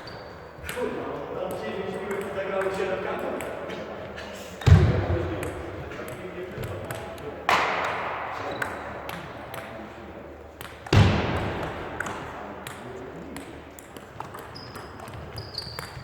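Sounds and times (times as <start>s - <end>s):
table tennis balls clicking: 0.0s - 3.6s, 5.4s - 7.3s, 11.6s - 16.0s
loud echoing thud: 4.6s - 5.5s, 7.5s - 9.2s, 10.9s - 12.4s.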